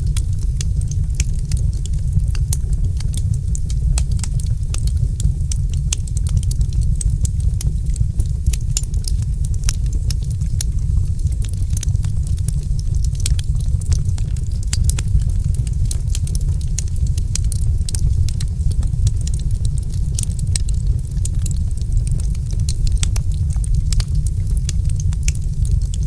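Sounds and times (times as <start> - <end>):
low rumble of flames: 0.0 - 26.0
wood fire crackling: 0.0 - 26.0.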